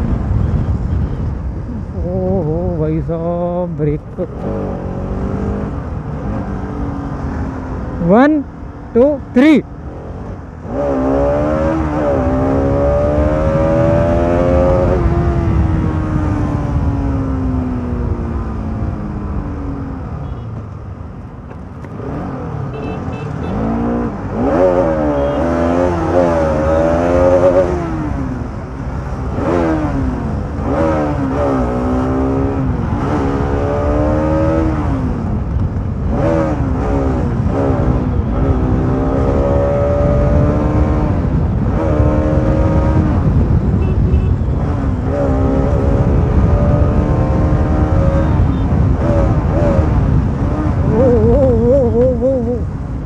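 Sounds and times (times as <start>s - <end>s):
motorcycle engine accelerating: 9.8s - 20.0s, 21.8s - 52.8s.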